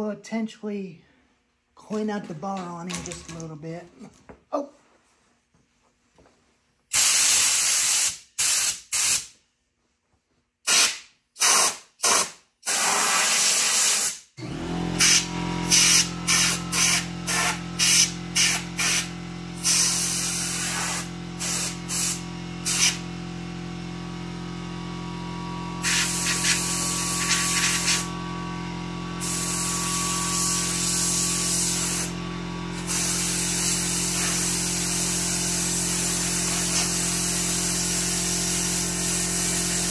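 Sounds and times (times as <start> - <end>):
compressed air hissing blasts: 6.9 - 9.3, 10.7 - 14.2, 15.0 - 23.0, 25.8 - 28.1, 29.2 - 32.1, 32.7 - 39.9
steady motor hum: 14.4 - 39.9.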